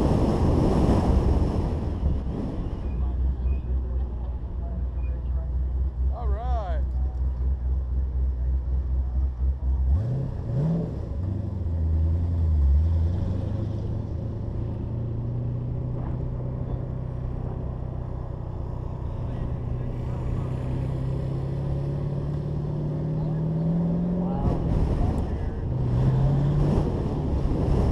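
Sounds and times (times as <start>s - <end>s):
car engine accelerating hard: 7.1s - 27.9s.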